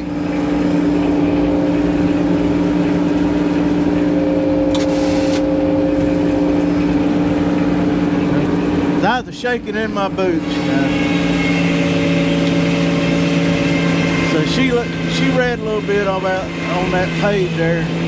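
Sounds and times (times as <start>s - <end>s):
engine running steadily: 0.0s - 18.0s
short hiss: 4.8s - 5.4s.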